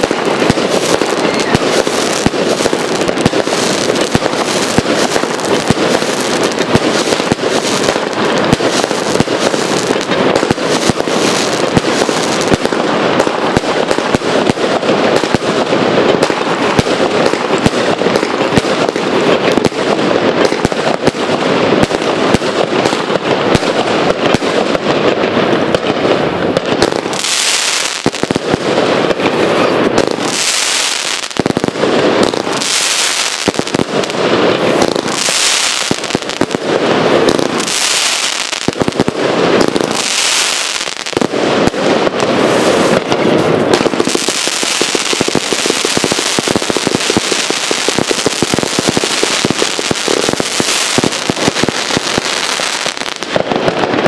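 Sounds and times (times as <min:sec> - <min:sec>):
crackling firework stars: 0:00.0 - 0:54.0
firework cake firing: 0:00.0 - 0:54.0.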